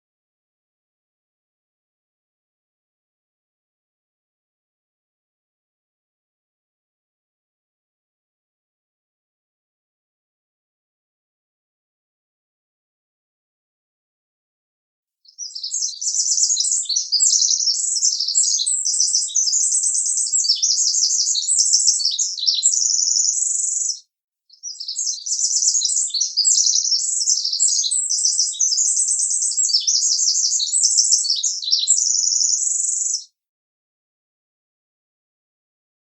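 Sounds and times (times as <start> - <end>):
rapid high bird twittering: 15.4 - 33.3.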